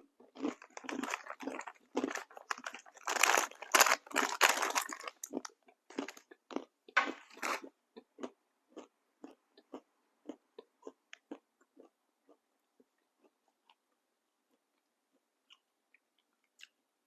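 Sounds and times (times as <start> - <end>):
crunchy snack crunching: 0.2 - 12.4
person chewing: 0.2 - 13.8.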